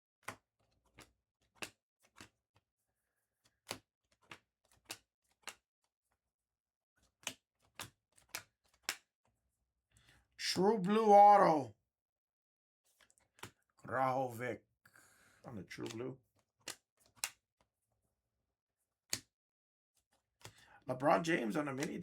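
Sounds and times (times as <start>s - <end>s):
cards flipping and clicking: 0.2s - 2.4s, 3.6s - 5.6s, 7.0s - 9.1s, 13.0s - 13.6s, 15.6s - 17.4s, 20.1s - 22.0s.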